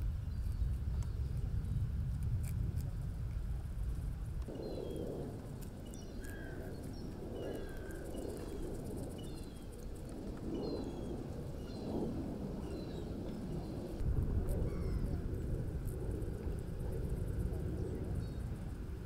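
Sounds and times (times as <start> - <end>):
wind rumble on microphone: 0.0 - 19.0
small birds chirping: 0.2 - 1.8, 4.5 - 12.0.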